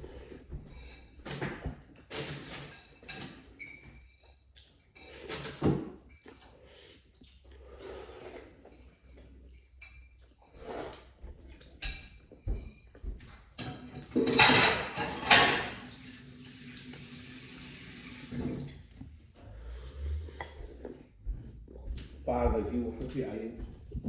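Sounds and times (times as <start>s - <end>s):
dishes and utensils clattering: 0.3s - 7.4s, 8.4s - 11.0s, 11.6s - 17.2s, 18.0s - 18.9s
water rushing from tap: 15.4s - 18.8s.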